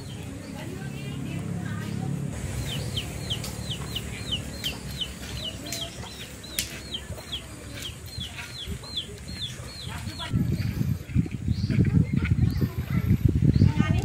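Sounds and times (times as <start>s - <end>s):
bird chirping: 1.9s - 12.8s.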